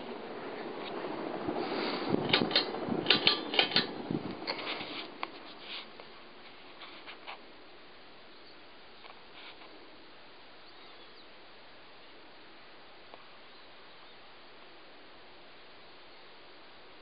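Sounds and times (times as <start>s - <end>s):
fan clicks and rattles: 0.0s - 7.4s
ceiling fan humming: 0.0s - 17.0s.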